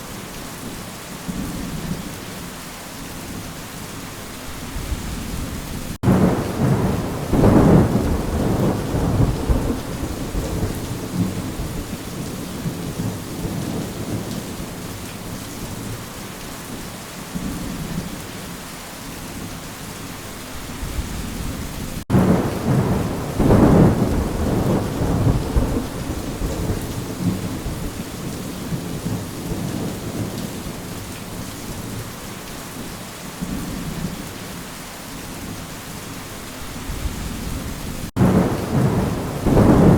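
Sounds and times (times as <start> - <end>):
steady rain: 0.0 - 39.9
rolls of thunder: 4.8 - 12.0, 21.0 - 28.0, 36.9 - 39.9.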